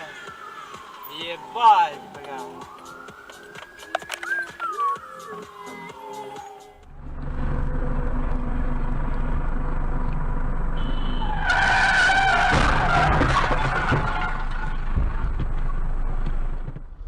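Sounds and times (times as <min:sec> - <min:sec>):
car driving with low rumble: 0:04.8 - 0:17.0
tyre screech: 0:10.8 - 0:15.4.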